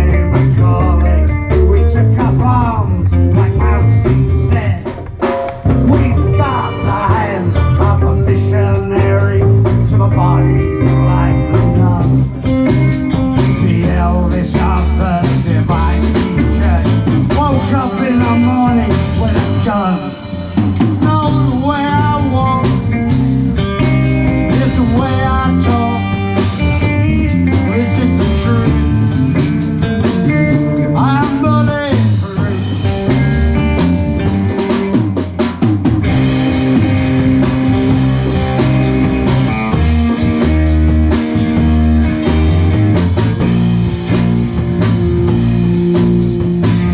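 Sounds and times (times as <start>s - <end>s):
bass guitar: 0.0s - 46.9s
drum kit: 0.0s - 46.9s
lead electric guitar bending notes: 0.0s - 46.9s.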